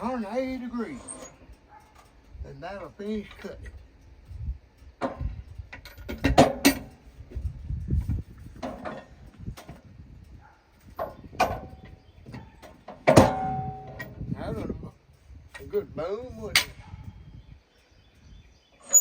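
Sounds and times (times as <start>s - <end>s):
log banging on steel: 5.9s - 7.0s, 12.6s - 14.2s.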